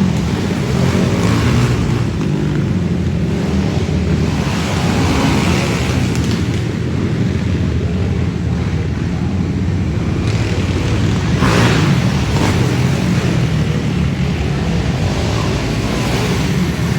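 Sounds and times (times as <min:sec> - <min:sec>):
quad engines revving: 0:00.0 - 0:16.9.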